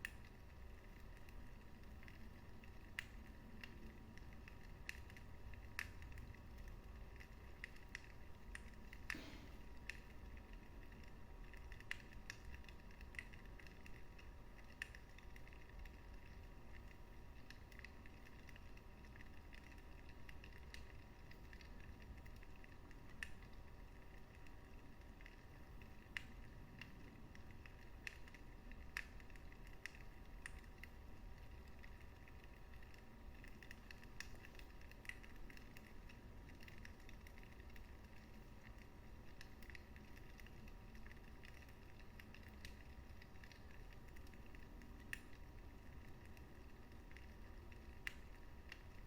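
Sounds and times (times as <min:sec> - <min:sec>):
low rumble of flames: 0:00.0 - 0:49.0
wood fire crackling and popping: 0:00.0 - 0:49.0.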